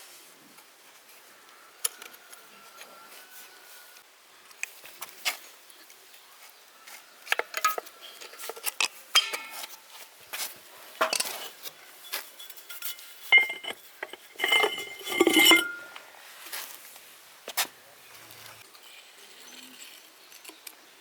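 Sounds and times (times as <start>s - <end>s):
metal tools clinking: 9.2s - 9.8s, 12.3s - 15.9s.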